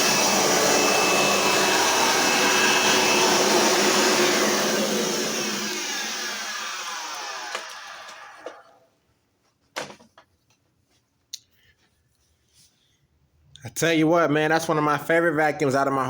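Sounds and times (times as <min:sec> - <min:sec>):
vacuum cleaner running: 0:00.0 - 0:08.8.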